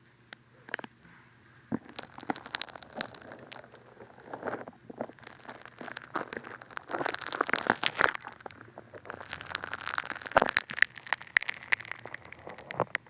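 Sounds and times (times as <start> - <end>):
bath foam bubbles crackling: 1.6 - 13.0.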